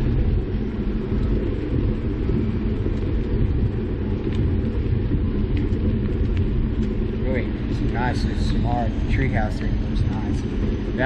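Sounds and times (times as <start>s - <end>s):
bicycle road noise: 0.0s - 11.0s
wind buffeting microphone: 0.0s - 11.0s.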